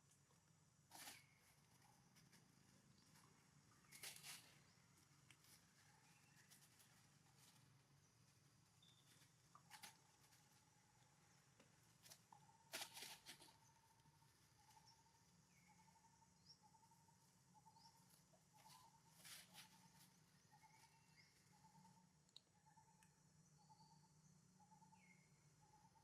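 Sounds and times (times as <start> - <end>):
faint bird chirps: 0.0 - 26.0
crackling rustle: 0.9 - 14.9, 18.0 - 20.9.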